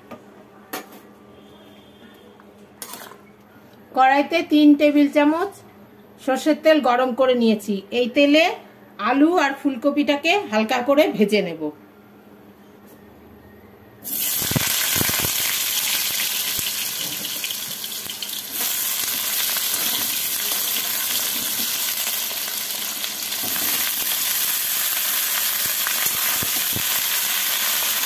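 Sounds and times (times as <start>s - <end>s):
vegetables sizzling in oil: 14.0s - 28.0s.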